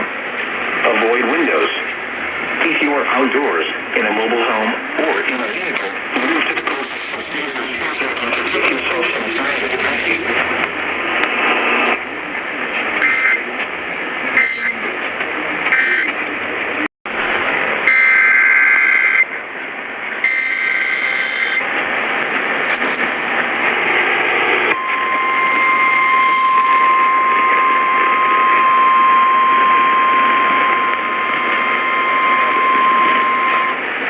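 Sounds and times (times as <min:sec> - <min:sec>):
radio static hiss: 0:00.0 - 0:34.0
screeching data bursts: 0:14.3 - 0:14.9
single-pitched alarm tone: 0:20.2 - 0:21.6, 0:24.8 - 0:33.8.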